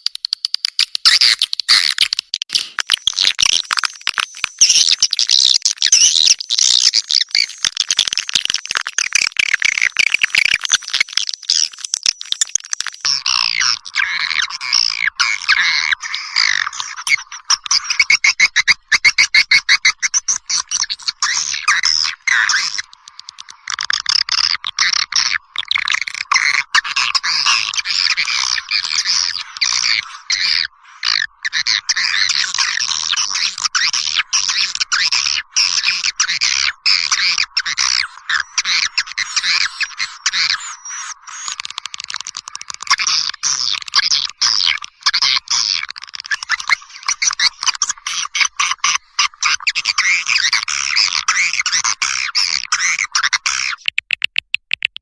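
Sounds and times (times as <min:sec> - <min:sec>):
birds chattering: 0:35.7 - 0:53.8.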